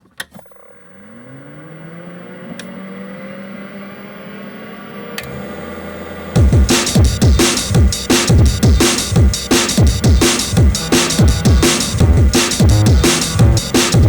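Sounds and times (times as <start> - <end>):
drum and bass drums: 6.4 - 14.0
synth tones rising in pitch: 9.9 - 14.0
low bass note: 10.6 - 14.0.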